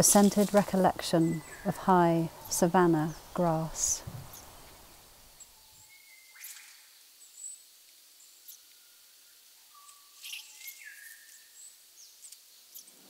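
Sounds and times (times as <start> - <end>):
bird chirps: 1.1 - 7.6, 9.7 - 13.0.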